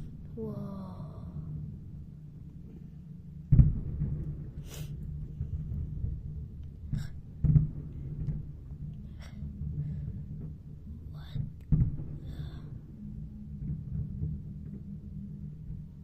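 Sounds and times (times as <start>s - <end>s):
fireworks booming: 3.5s - 15.8s.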